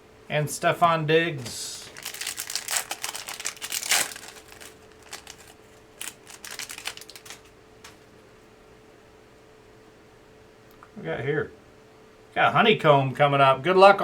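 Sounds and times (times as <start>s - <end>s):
card pack wrapper crinkling: 1.4s - 8.0s
cards being handled: 1.4s - 8.1s.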